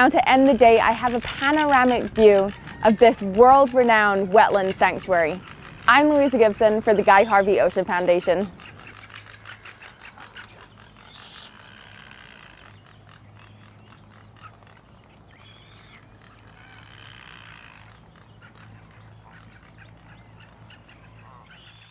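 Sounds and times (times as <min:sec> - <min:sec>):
seabirds harsh calls: 0:00.0 - 0:21.9
seabird clicking rattle: 0:00.2 - 0:11.2.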